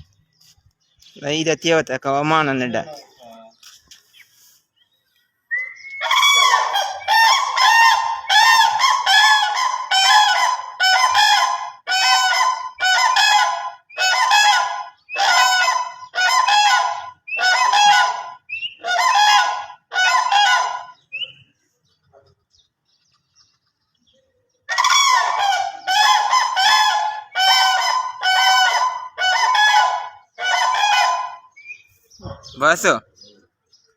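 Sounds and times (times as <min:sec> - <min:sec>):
cranes trumpeting: 0:05.8 - 0:20.9.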